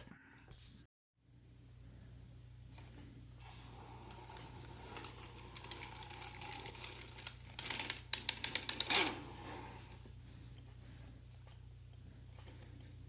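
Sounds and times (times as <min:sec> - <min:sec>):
sharp clicks over needles: 0:07.2 - 0:09.1.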